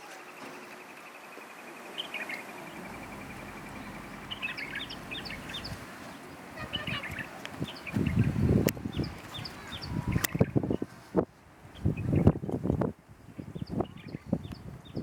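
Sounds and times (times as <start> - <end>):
bird trilling: 2.7 - 10.0.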